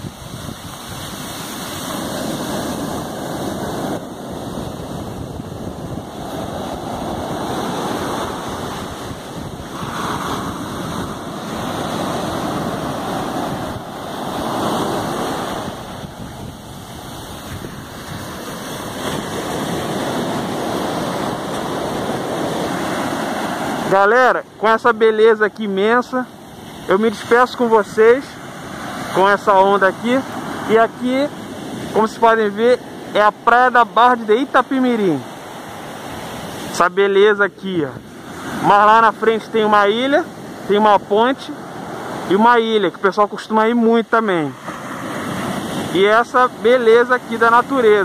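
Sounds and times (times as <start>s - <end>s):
wind buffeting microphone: 0.0s - 23.9s
ocean surf breaking: 0.0s - 48.0s.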